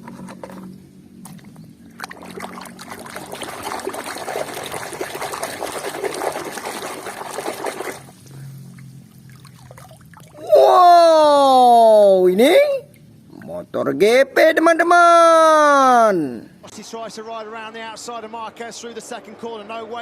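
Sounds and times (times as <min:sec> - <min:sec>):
water splashing and trickling: 0:01.2 - 0:10.6.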